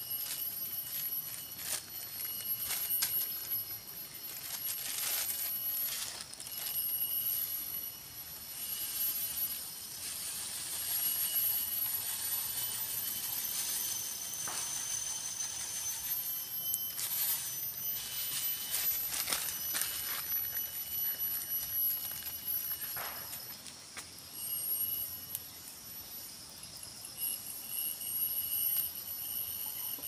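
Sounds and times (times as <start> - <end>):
insects calling: 0.0 - 30.0.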